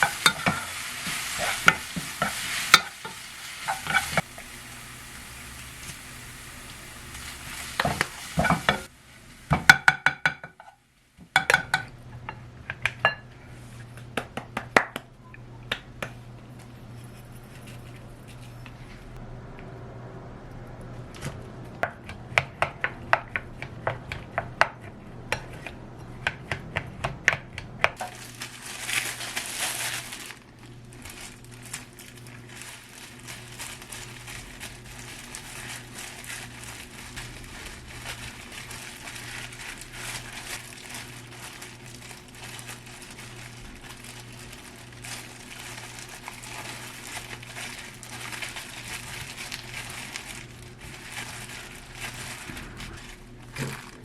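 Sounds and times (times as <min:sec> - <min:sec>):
low hum: 0:16.7 - 0:21.8, 0:48.1 - 0:54.0.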